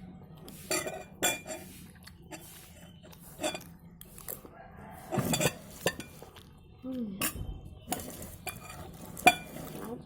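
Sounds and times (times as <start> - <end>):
cutlery clinking on plate: 0.7 - 1.7, 5.1 - 6.3, 7.2 - 9.8.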